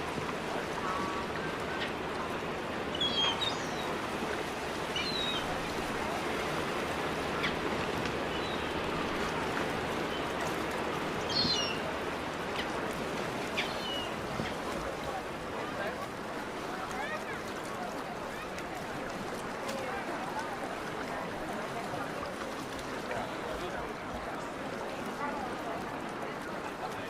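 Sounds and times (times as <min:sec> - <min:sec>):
water flowing: 0:00.0 - 0:27.0
birds chirping: 0:00.7 - 0:06.6, 0:07.2 - 0:12.8, 0:13.4 - 0:14.7.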